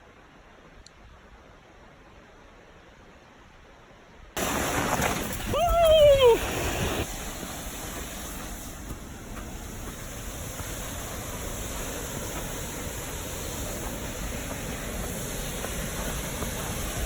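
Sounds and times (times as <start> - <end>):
waterfall roaring: 4.4 - 17.0.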